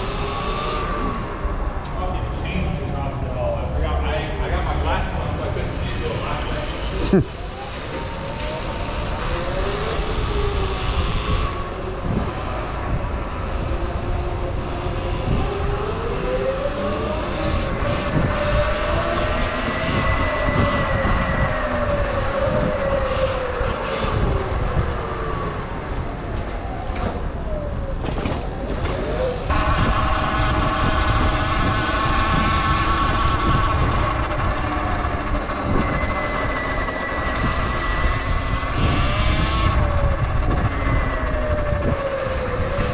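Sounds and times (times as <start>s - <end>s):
wind rumble on microphone: 0.0s - 42.9s
electric motorbike motor whining: 28.5s - 42.9s.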